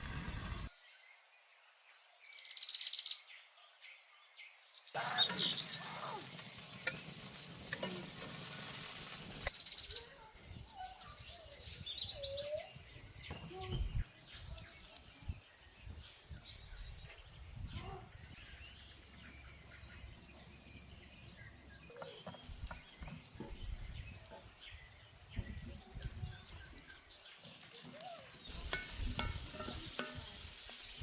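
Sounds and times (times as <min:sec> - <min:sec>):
bird chirps: 0:02.1 - 0:03.4, 0:04.5 - 0:06.1, 0:09.5 - 0:31.0.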